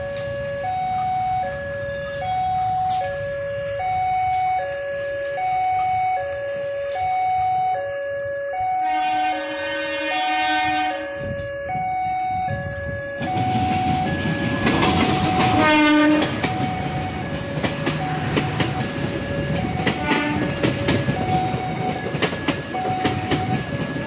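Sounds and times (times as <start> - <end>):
two-tone warning tone: 0.0 - 24.0
locomotive horn blast: 8.6 - 11.5, 15.0 - 16.6, 20.0 - 20.6
locomotive engine passing: 12.8 - 24.0
wheels clattering on rails: 13.2 - 24.0.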